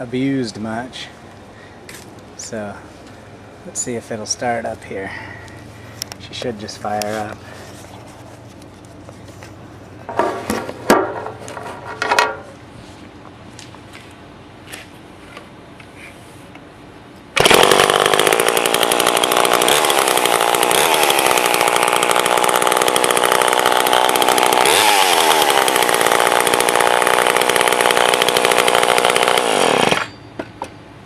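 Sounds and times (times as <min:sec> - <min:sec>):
chainsaw running: 0:17.4 - 0:30.1.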